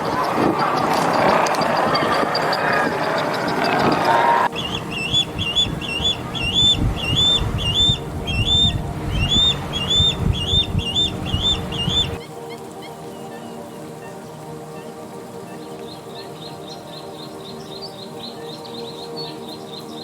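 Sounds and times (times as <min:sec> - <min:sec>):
low rumbling background: 0:04.4 - 0:12.2
bird whistling high note: 0:04.4 - 0:12.3.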